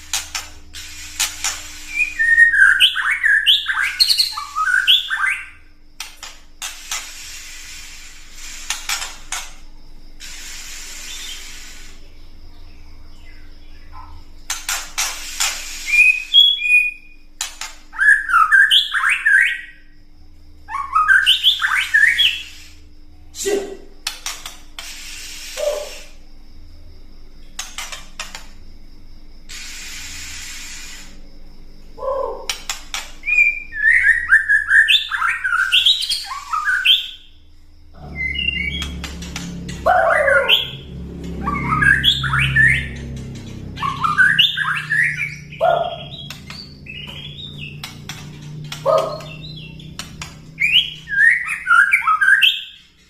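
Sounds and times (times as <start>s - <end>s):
bird harsh rattling chatter: 0.0s - 5.0s, 6.1s - 9.6s, 14.5s - 16.5s, 38.2s - 51.1s
bird whistled song: 0.3s - 5.6s, 10.2s - 14.2s, 15.0s - 19.9s, 20.7s - 22.8s, 24.8s - 26.2s, 33.2s - 37.4s, 38.0s - 53.0s.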